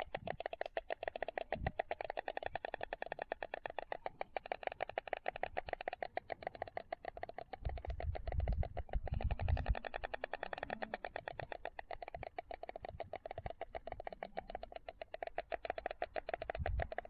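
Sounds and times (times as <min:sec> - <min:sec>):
storks clattering bills: 0:00.0 - 0:17.0
low wind rumble on microphone: 0:07.6 - 0:10.0, 0:16.6 - 0:17.0.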